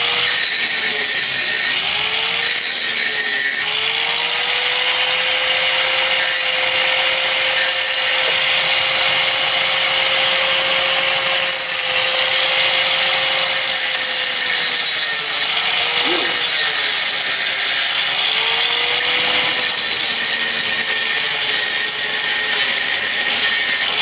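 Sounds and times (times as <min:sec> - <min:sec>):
angle grinder grinding steel: 0:00.0 - 0:24.0.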